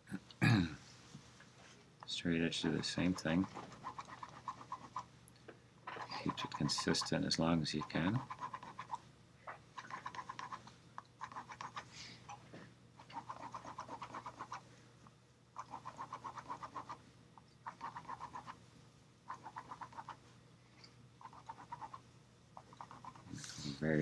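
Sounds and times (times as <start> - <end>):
pencil scratching on paper: 2.5 - 5.0, 5.9 - 9.0, 9.8 - 10.6, 11.2 - 11.9, 13.0 - 14.6, 15.6 - 17.0, 17.7 - 18.6, 19.3 - 20.2, 21.2 - 22.0, 22.6 - 23.4.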